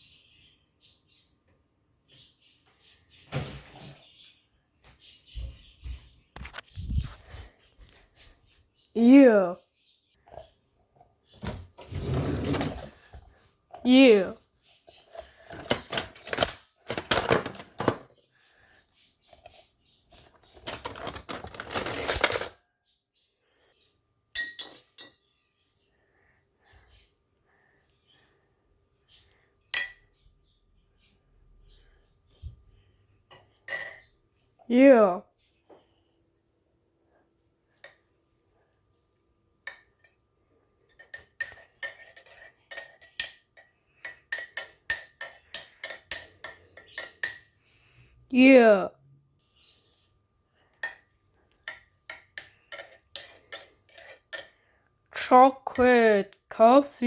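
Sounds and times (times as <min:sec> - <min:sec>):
metal spoon scraping a cup: 0:40.8 - 0:47.5, 0:51.6 - 0:54.6.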